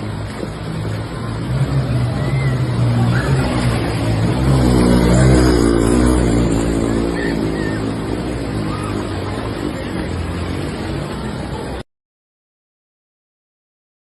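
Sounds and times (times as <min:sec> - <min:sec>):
steady rushing noise: 0:00.0 - 0:11.8.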